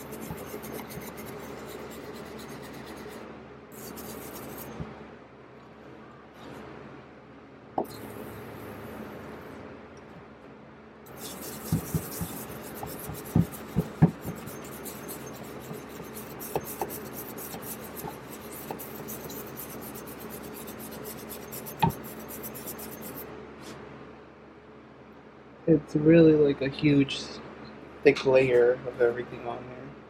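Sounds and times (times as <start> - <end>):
wire brush scrubbing metal: 0.0 - 4.8, 11.1 - 23.2
sharp knocks: 11.6 - 14.5.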